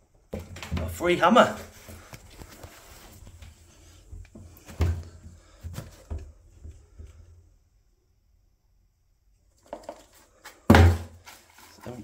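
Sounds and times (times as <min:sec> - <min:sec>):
objects knocking and clunking: 0:00.0 - 0:01.0, 0:01.7 - 0:07.4, 0:09.6 - 0:12.0.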